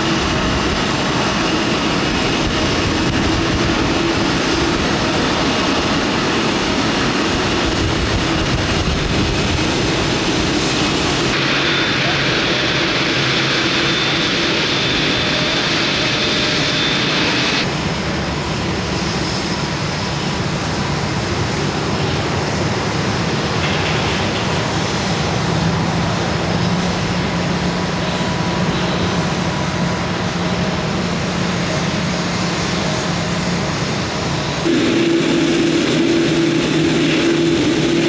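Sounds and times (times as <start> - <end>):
airliner engines running: 0.0 - 38.0
high steady whine: 25.5 - 38.0.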